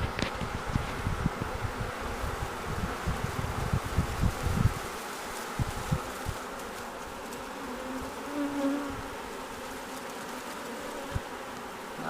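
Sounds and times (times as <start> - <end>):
bee swarm buzzing: 0.0 - 12.0
single pitched bee buzz: 0.0 - 12.0.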